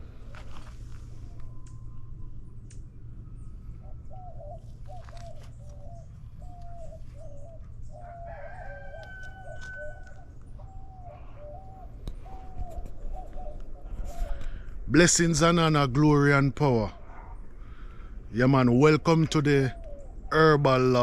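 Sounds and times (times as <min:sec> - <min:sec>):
birds calling: 0:00.0 - 0:21.0
steady low hum: 0:00.0 - 0:21.0.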